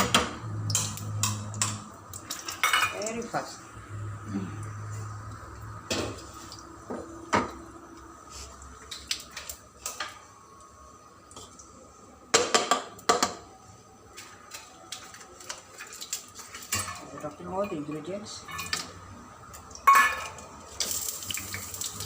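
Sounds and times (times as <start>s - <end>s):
cookware clinking and knocking: 2.4s - 3.2s, 19.9s - 20.5s.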